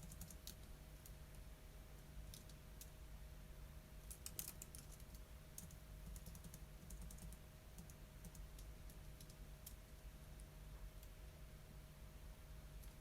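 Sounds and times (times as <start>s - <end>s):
typing on computer keyboard: 0.0s - 0.7s, 4.0s - 9.8s
faint steady hum: 0.0s - 13.0s.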